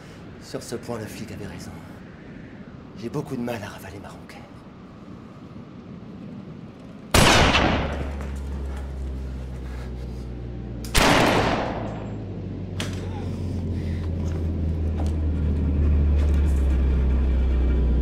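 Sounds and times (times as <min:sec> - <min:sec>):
low steady drone: 0:00.0 - 0:18.0
gunshots with echo: 0:07.2 - 0:08.3, 0:10.9 - 0:12.1.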